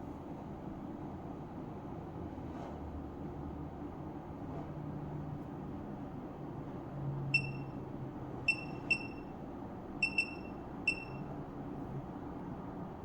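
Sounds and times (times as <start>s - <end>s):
short high electronic beeps: 7.4s - 7.8s, 8.5s - 9.3s, 10.0s - 11.2s.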